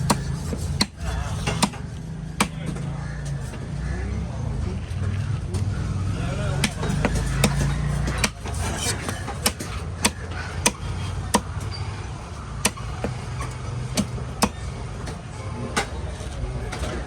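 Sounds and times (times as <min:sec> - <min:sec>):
knife chopping on cutting block: 0:00.0 - 0:01.8, 0:06.6 - 0:11.5
low background rumble: 0:00.0 - 0:17.0.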